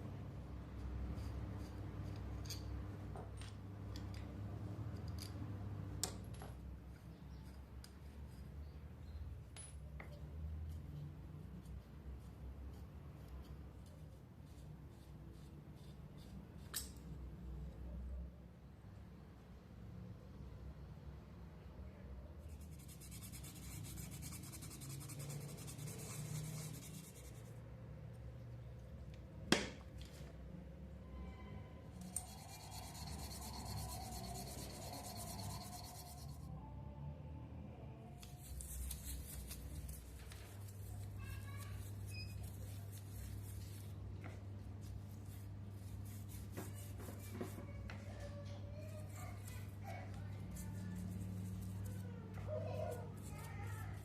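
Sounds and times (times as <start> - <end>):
metal tools clicking and tapping: 2.1 - 4.3, 16.6 - 17.2.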